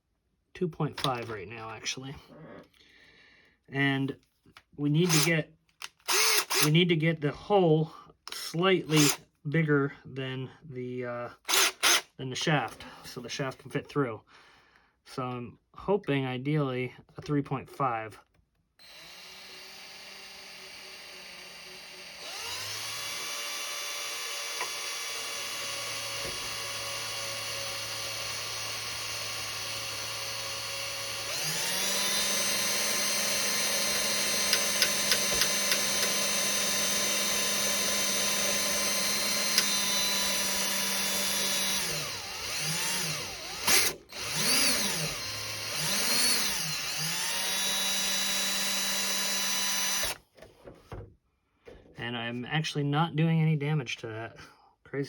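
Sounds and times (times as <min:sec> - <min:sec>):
electric drill whining: 0:06.1 - 0:06.7, 0:08.3 - 0:09.2, 0:11.5 - 0:12.0, 0:18.8 - 0:50.2.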